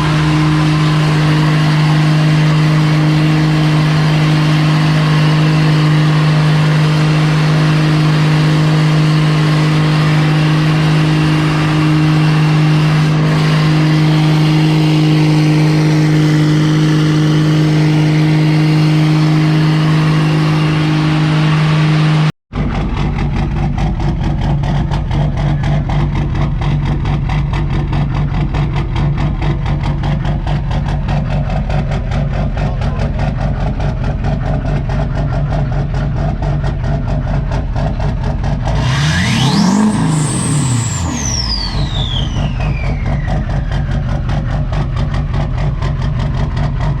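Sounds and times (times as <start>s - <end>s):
steady drone: 0.0s - 22.3s
diesel truck engine idling: 0.0s - 38.8s, 39.6s - 47.0s
turbo whistle: 38.9s - 44.1s.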